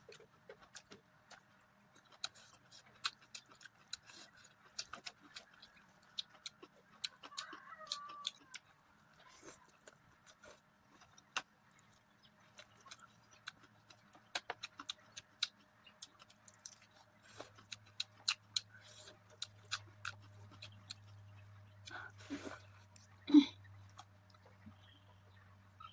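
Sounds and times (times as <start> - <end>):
low steady hum: 8.6 - 25.9.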